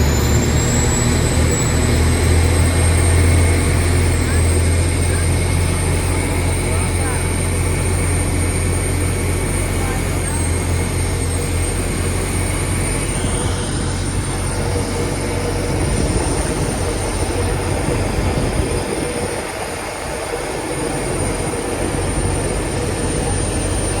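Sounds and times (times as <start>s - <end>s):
boat diesel engine droning: 0.0s - 24.0s.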